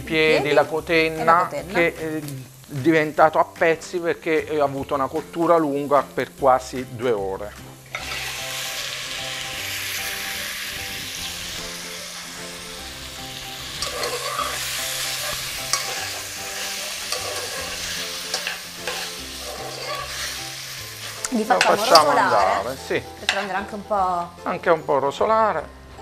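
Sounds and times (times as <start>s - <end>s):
meat sizzling in hot oil: 0.0s - 24.3s
metal spoon scraping a pot: 13.8s - 20.5s.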